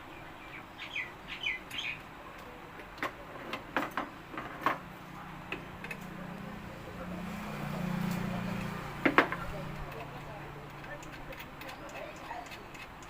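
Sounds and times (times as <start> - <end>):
tool clicking on metal: 9.3 - 13.0.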